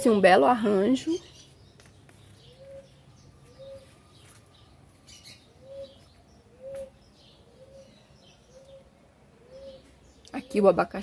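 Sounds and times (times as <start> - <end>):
faint high bird chirps: 1.0 - 10.7
low arched bird call: 2.4 - 4.3, 5.1 - 10.2.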